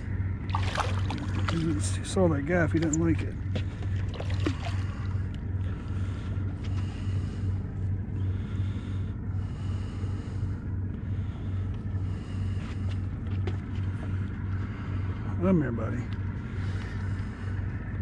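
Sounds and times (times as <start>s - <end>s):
water noise: 0.0s - 5.7s
boat engine idling: 0.0s - 18.0s
wind: 0.0s - 18.0s.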